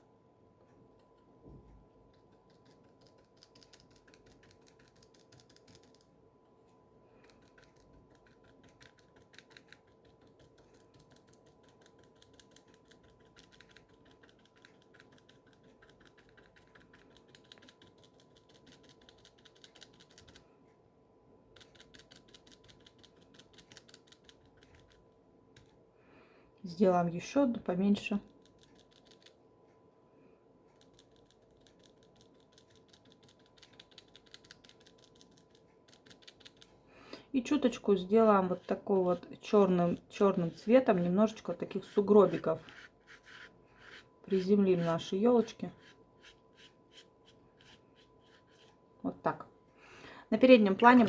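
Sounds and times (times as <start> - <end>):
faint steady hum: 0.0 - 51.0
brush tapping on paper: 42.2 - 48.7.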